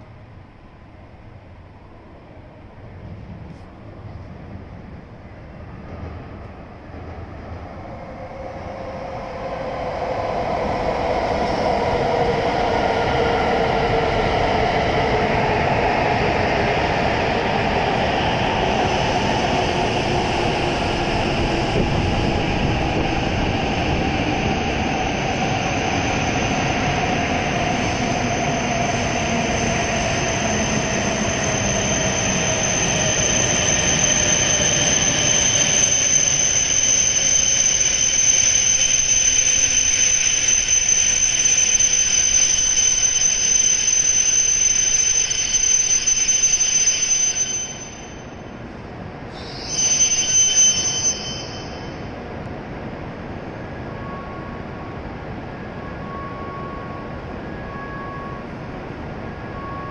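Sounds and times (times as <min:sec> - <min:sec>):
high brake squeal: 0:25.6 - 0:48.6, 0:49.3 - 0:52.2, 0:53.9 - 0:55.0, 0:55.8 - 0:59.9.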